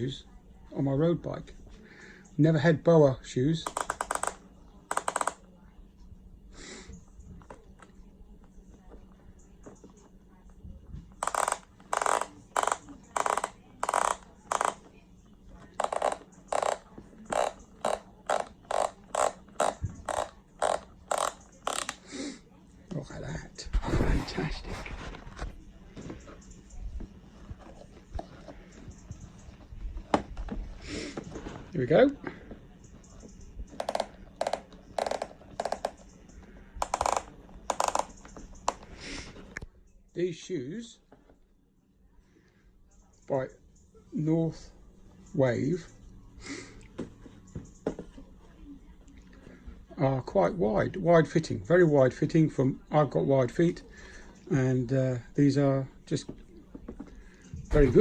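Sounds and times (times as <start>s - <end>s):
dial ratchet clicks: 11.2s - 14.8s.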